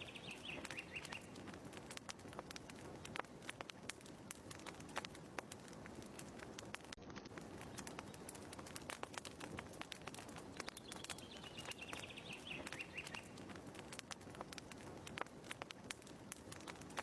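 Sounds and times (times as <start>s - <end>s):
bird trill: 0.0s - 1.3s, 10.8s - 13.3s
wood fire crackling: 0.0s - 17.0s.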